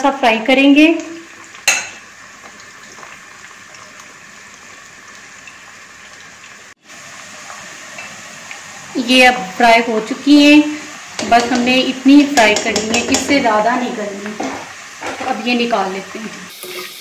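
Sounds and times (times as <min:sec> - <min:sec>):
okra sizzling in hot oil: 0:00.0 - 0:17.0.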